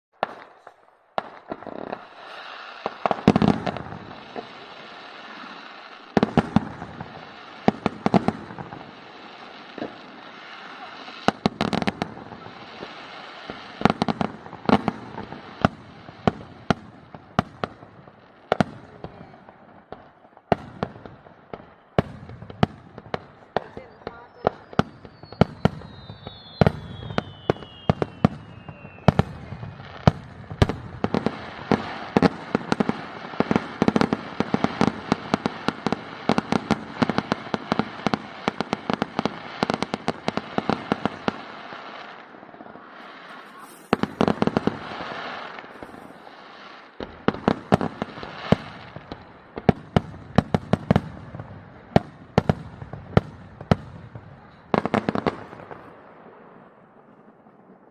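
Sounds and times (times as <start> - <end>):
falling firework whistle: 0.2 - 7.5, 24.2 - 32.3, 42.7 - 46.6
fireworks crackling bangs: 0.2 - 57.9.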